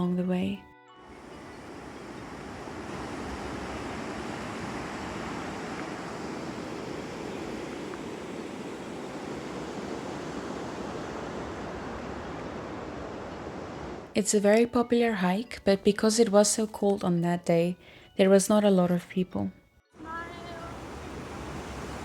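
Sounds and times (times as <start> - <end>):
river water rushing over rocks: 1.2 - 14.0, 20.0 - 22.0.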